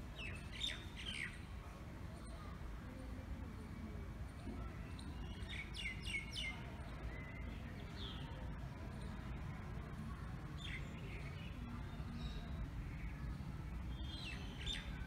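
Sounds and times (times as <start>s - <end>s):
small birds chirping: 0.2s - 1.5s, 4.3s - 15.0s.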